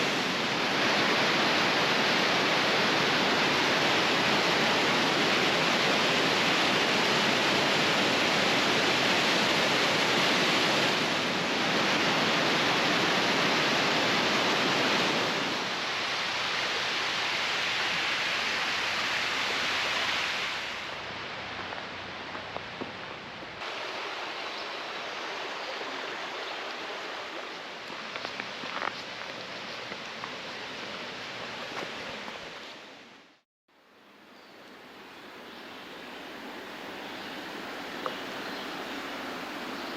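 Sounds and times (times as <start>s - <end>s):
waterfall rushing: 0.0s - 21.3s, 35.8s - 39.9s.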